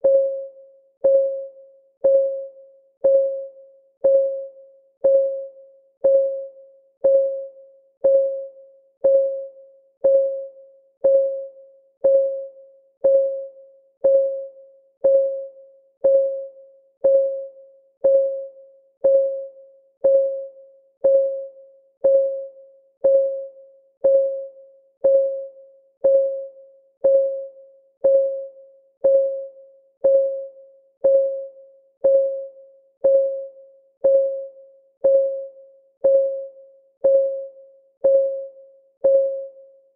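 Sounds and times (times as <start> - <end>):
countdown timer ticking: 2.0 - 2.4, 3.0 - 4.4, 5.0 - 39.6.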